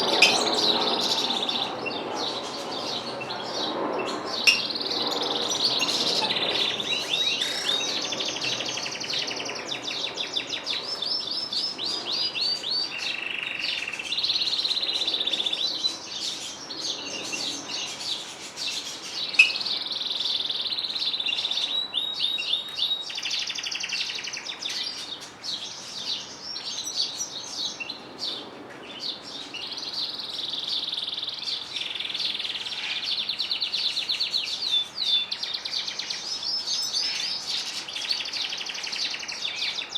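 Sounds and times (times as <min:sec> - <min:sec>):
sharp loud bird chirp: 0:00.0 - 0:16.3
songbirds singing trills: 0:00.0 - 0:39.9.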